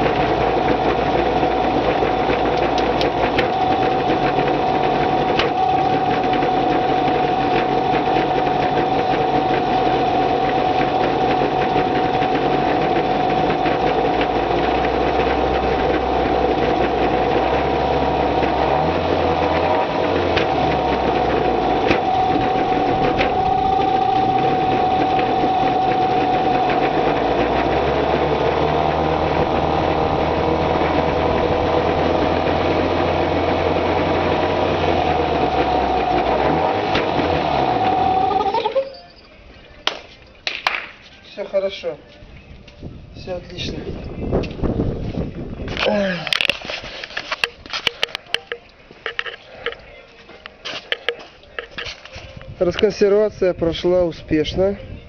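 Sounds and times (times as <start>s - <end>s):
outboard motor idling: 0.0s - 39.9s.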